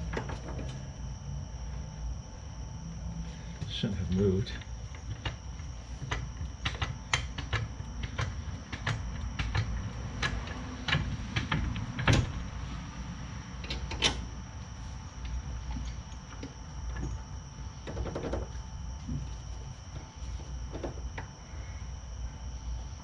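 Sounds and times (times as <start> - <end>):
metal clicks and knocks: 4.9 - 12.4, 17.8 - 18.6.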